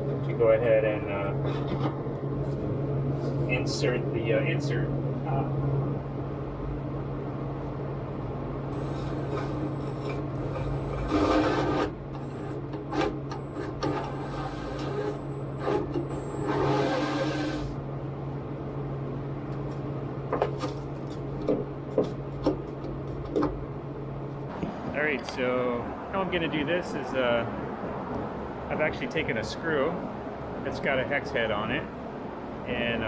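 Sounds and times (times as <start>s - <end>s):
steady low hum: 0.0s - 33.0s
drill boring into plywood: 8.8s - 17.8s.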